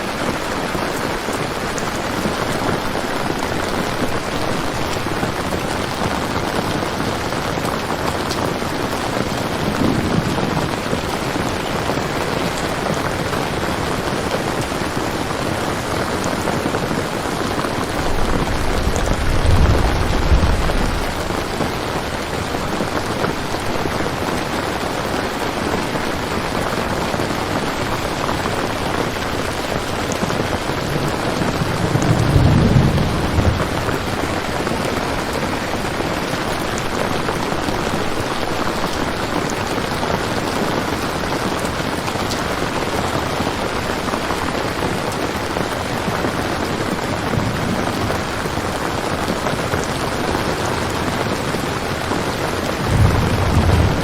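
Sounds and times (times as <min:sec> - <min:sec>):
steady rain falling: 0:00.0 - 0:54.0
low rolls of thunder: 0:08.6 - 0:22.8, 0:28.6 - 0:35.9, 0:47.1 - 0:50.0, 0:52.6 - 0:54.0.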